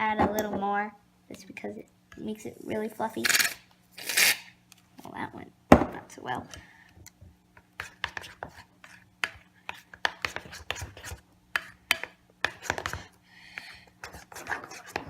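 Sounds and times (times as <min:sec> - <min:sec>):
spoon scraping a bowl: 0:14.0 - 0:15.0.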